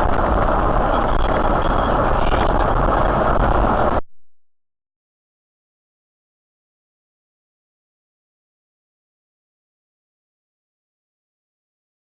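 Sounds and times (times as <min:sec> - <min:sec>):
car road and engine rumble: 0:00.0 - 0:04.0.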